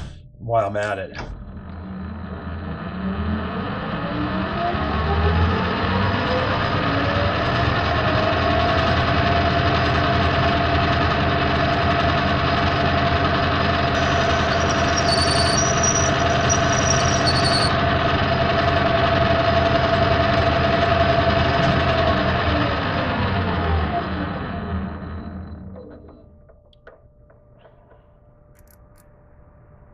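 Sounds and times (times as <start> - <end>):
metal lathe running: 1.6 - 25.6
high-pitched squeals: 13.9 - 17.8.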